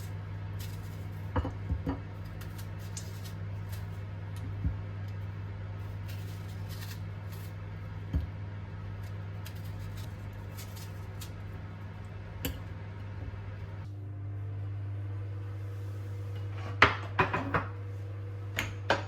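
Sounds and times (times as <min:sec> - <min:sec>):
food preparation handling: 0:00.0 - 0:11.6
steady low hum: 0:00.0 - 0:19.0.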